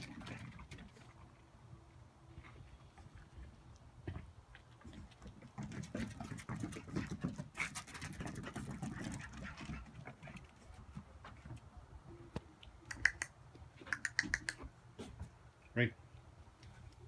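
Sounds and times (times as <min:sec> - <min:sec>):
claws clicking on wooden deck: 0:03.7 - 0:10.7, 0:12.9 - 0:15.3
puppy noises: 0:04.8 - 0:11.3, 0:12.8 - 0:14.7.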